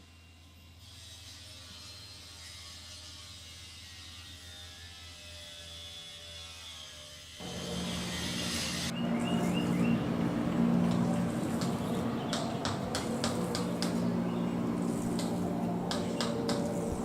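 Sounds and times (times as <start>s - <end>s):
machine drone: 7.4s - 17.0s.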